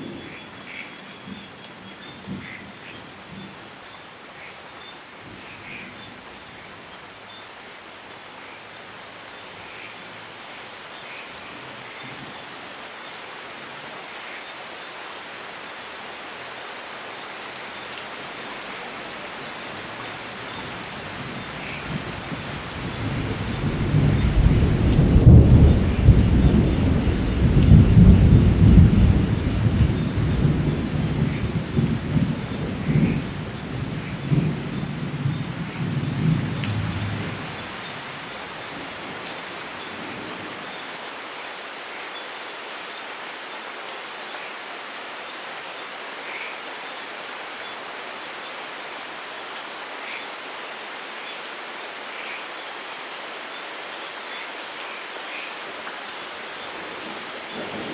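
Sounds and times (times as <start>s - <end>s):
steady rain: 0.0s - 57.9s
rolling thunder rumble: 21.4s - 37.8s, 56.9s - 57.9s.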